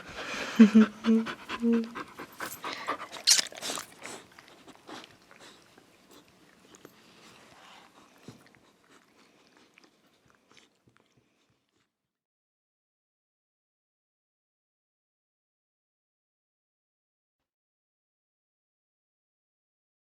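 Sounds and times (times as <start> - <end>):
dog chewing: 1.3 - 11.8.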